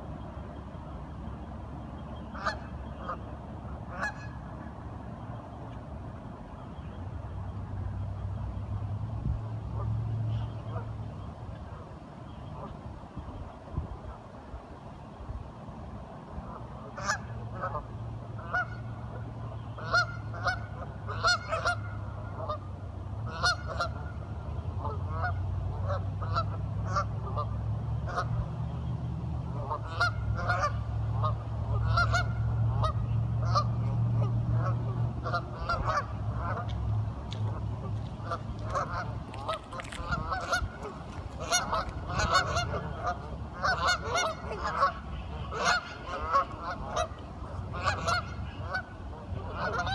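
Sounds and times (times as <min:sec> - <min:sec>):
ducks quacking: 0:02.3 - 0:03.2, 0:03.8 - 0:04.5, 0:16.9 - 0:22.6, 0:23.3 - 0:24.2, 0:29.6 - 0:49.9.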